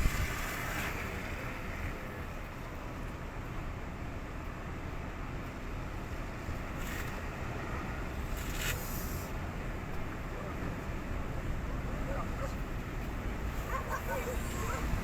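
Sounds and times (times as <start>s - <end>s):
waves breaking hiss: 0.0s - 2.2s, 6.7s - 9.7s
sea and wind rumble: 0.0s - 15.0s.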